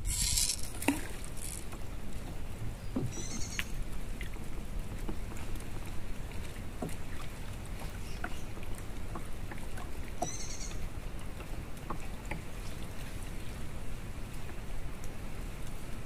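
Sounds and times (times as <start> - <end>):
paddle knocks and drips: 0.0 - 10.4, 11.2 - 13.5.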